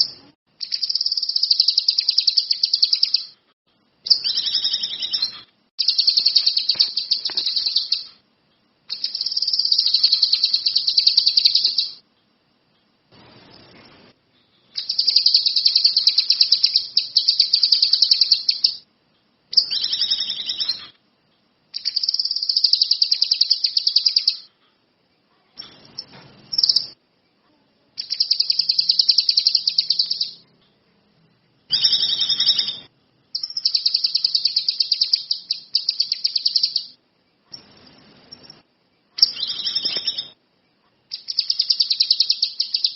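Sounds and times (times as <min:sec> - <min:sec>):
songbird singing rapid trills: 0:00.0 - 0:03.3, 0:04.1 - 0:08.1, 0:08.9 - 0:12.0, 0:14.8 - 0:18.8, 0:21.8 - 0:24.5, 0:28.0 - 0:30.4, 0:33.4 - 0:37.0, 0:41.1 - 0:42.9.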